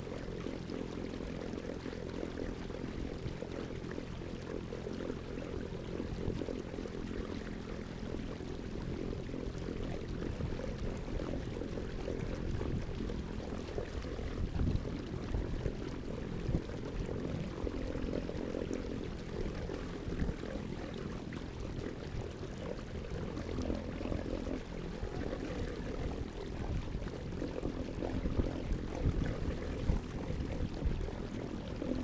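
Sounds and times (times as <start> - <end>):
water sloshing around a kayak: 0.0 - 32.0.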